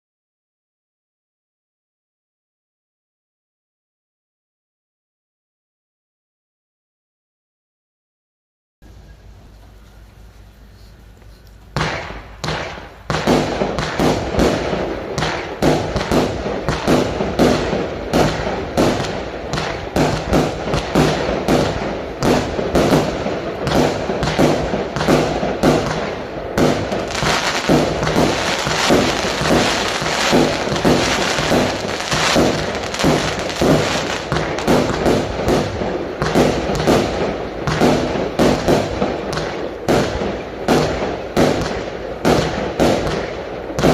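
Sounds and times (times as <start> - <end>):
firework launch thumps and bursts: 11.7 - 43.9.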